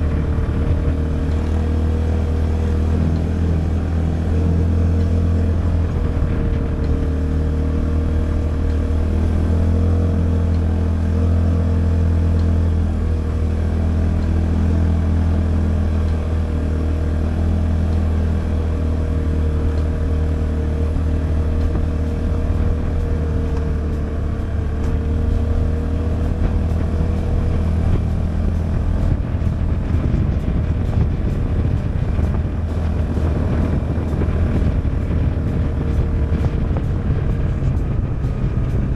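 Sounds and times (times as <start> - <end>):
vehicle engine running steadily: 0.0 - 38.9.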